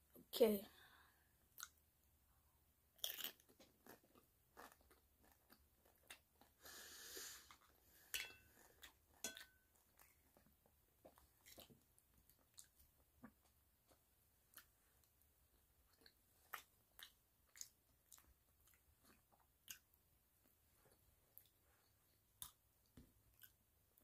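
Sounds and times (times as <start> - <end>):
crunching and chewing: 3.0 - 6.6, 8.4 - 15.2, 15.9 - 20.0.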